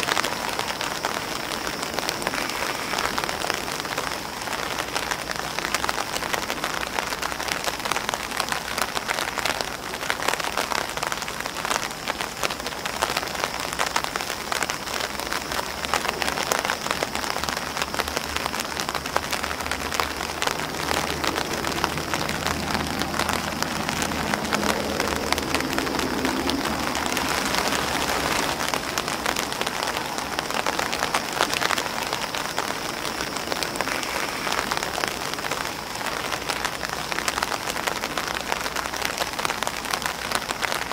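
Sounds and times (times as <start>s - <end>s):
rain on an umbrella and grass: 0.0s - 40.9s.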